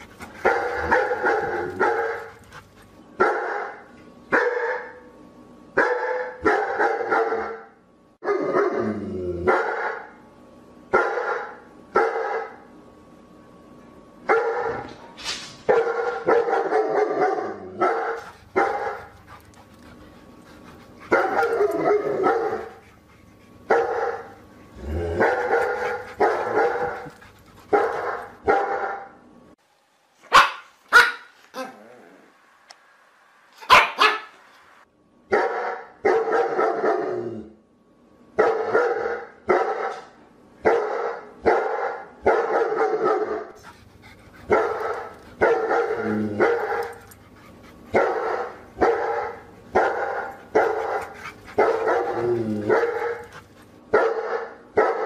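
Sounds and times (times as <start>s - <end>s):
dog barking: 0.4s - 2.3s, 3.2s - 5.0s, 5.8s - 8.7s, 9.5s - 10.1s, 10.9s - 12.6s, 14.3s - 14.9s, 15.7s - 19.1s, 21.1s - 22.7s, 23.7s - 24.4s, 25.2s - 27.1s, 27.7s - 29.1s, 30.3s - 31.3s, 33.6s - 34.4s, 35.3s - 37.1s, 38.4s - 43.6s, 44.5s - 47.0s, 47.9s - 53.3s, 53.9s - 55.0s.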